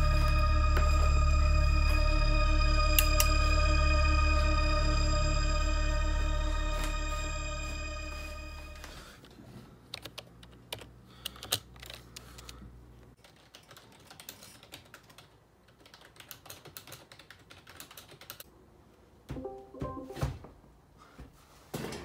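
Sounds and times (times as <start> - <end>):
computer keyboard typing: 13.2 - 18.4.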